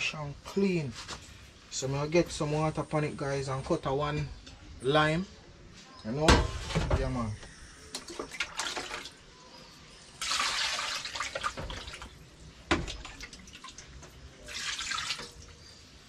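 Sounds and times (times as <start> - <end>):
tap water running: 10.2 - 15.6.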